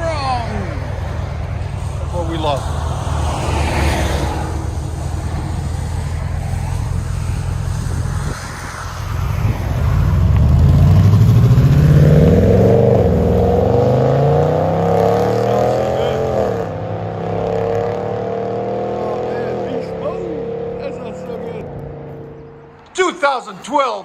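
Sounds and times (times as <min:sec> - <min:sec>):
vee eight engine revving: 0:00.0 - 0:22.9.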